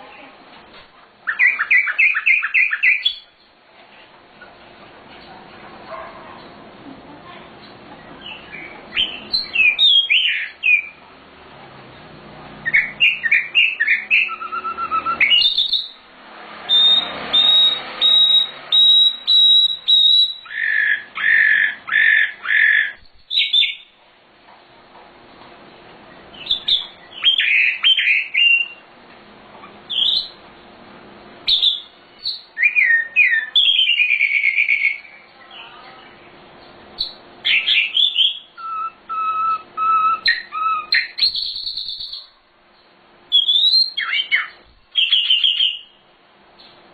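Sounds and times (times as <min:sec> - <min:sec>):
bird singing whistled phrases: 0:01.3 - 0:03.4, 0:08.2 - 0:11.0, 0:12.6 - 0:16.0, 0:16.7 - 0:23.9, 0:26.4 - 0:28.8, 0:29.9 - 0:30.4, 0:31.5 - 0:35.7, 0:37.0 - 0:42.4, 0:43.3 - 0:46.0.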